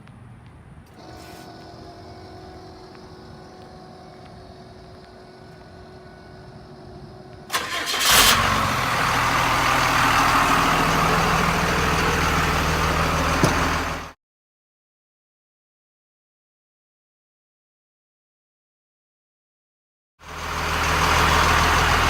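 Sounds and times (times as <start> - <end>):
faint steady hum: 0.0 - 7.5
truck engine starting and idling: 1.0 - 14.2, 20.2 - 22.0.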